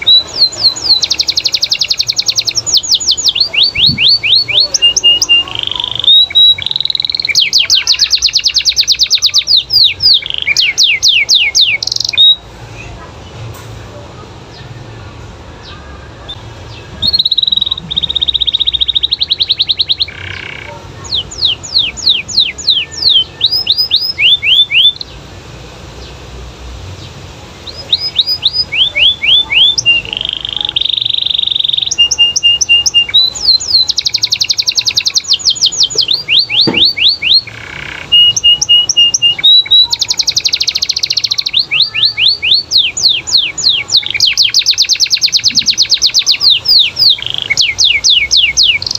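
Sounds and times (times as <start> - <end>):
canary singing with trills: 0.0 - 13.5, 14.2 - 26.2, 26.9 - 48.9.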